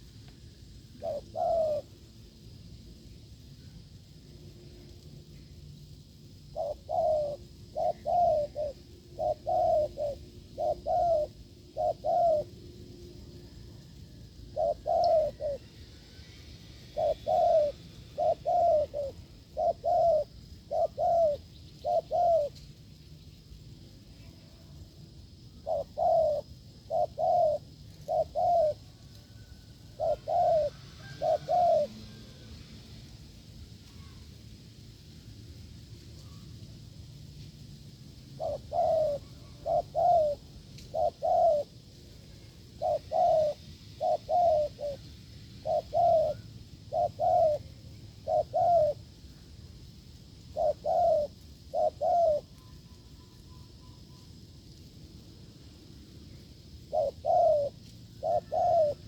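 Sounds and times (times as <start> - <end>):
dove cooing: 0.9 - 2.2, 6.4 - 22.6, 25.4 - 32.5, 38.3 - 49.4, 50.4 - 54.2, 56.8 - 59.0.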